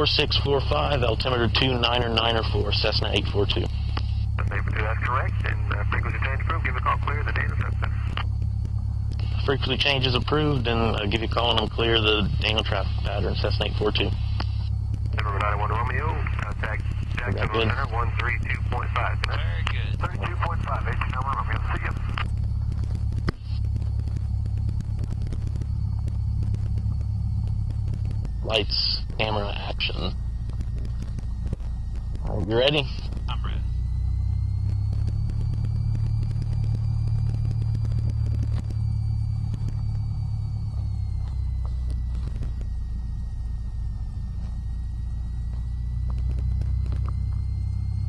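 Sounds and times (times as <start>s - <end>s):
propeller plane engine drone in cabin: 0.0s - 48.0s
faint crackling ticks: 29.1s - 32.3s, 34.2s - 42.8s, 45.4s - 47.4s.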